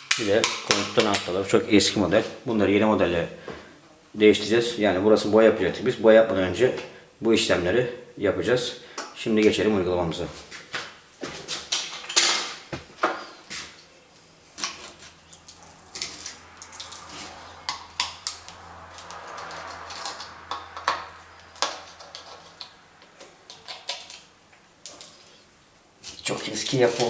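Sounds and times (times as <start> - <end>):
hand tool clicking and knocking: 0.0 - 1.3.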